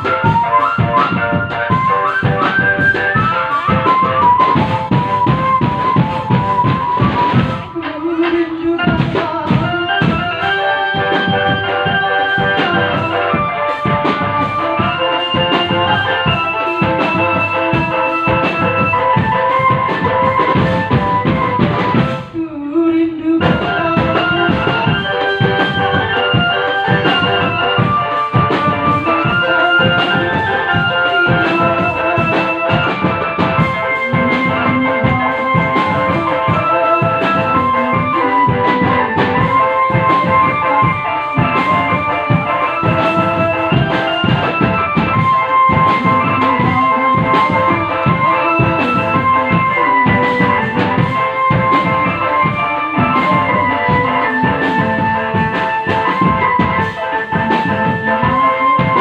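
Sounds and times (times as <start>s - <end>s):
organ-like melody: 0.0s - 7.9s, 8.6s - 22.4s, 23.4s - 59.0s
fast drumming: 0.0s - 22.3s, 23.4s - 59.0s.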